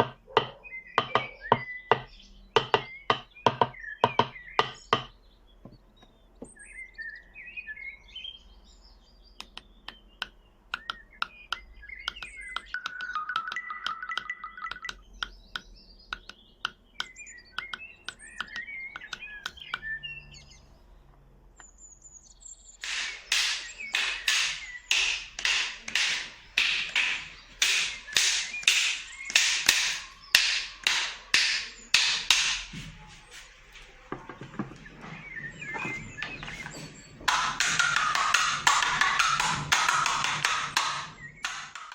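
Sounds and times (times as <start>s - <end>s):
bird-like chirps: 0.0s - 41.9s
scattered clicks: 9.4s - 19.9s.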